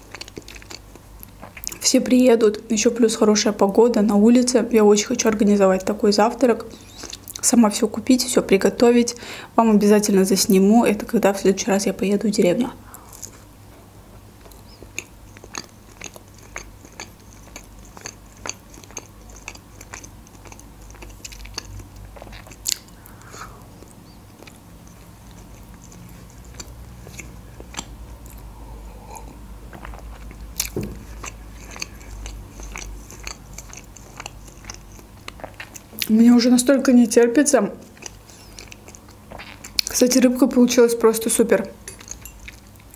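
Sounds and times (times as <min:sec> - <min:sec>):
person chewing with mouth smacks: 0:00.0 - 0:01.8, 0:06.7 - 0:07.4, 0:12.9 - 0:13.5, 0:14.4 - 0:36.1, 0:37.8 - 0:40.0, 0:42.0 - 0:42.9.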